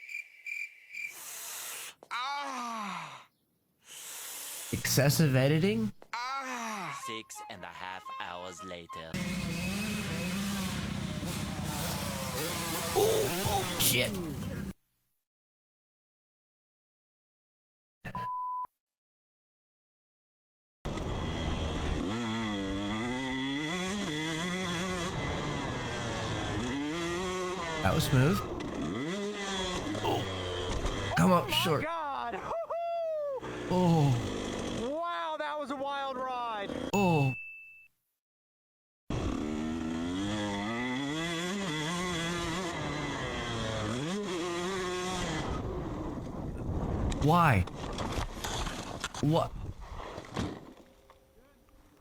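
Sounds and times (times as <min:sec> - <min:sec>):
dirt bike engine running: 0:09.2 - 0:14.7, 0:20.9 - 0:27.8, 0:28.4 - 0:31.2, 0:39.1 - 0:45.8
short beep: 0:37.0 - 0:37.9.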